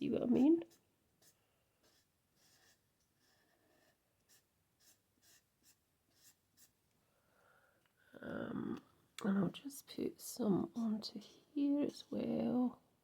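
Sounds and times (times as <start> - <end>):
marker nib scratching on card: 0.4 - 6.8.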